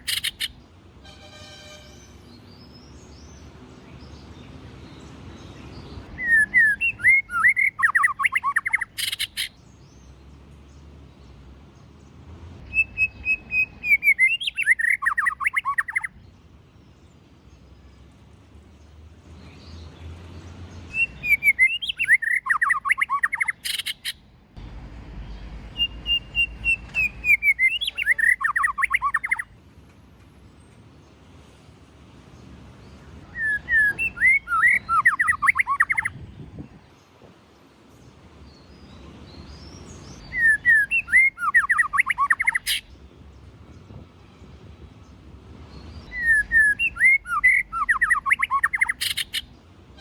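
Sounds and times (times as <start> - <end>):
bird singing whistled phrases: 6.2 - 9.5, 12.7 - 16.1, 20.9 - 24.2, 25.7 - 29.5, 33.3 - 36.1, 40.2 - 42.8, 46.1 - 49.5.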